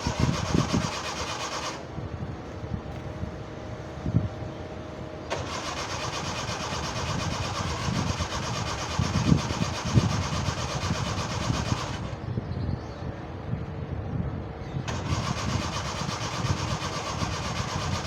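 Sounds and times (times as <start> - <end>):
starter motor cranking engine: 0.0 - 1.9, 5.3 - 12.2, 14.9 - 18.0.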